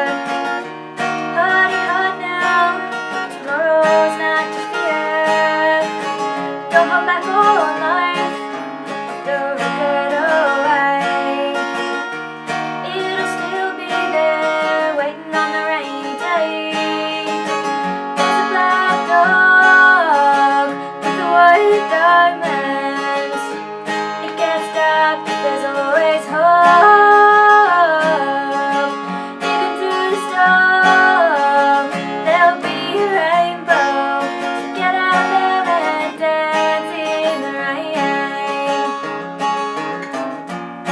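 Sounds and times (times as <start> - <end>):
strummed acoustic guitar: 0.0 - 40.9.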